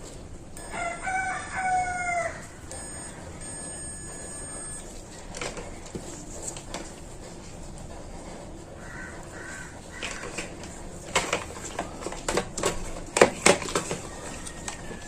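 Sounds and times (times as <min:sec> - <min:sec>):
clicks and knocks of handled parts: 0:10.0 - 0:15.0.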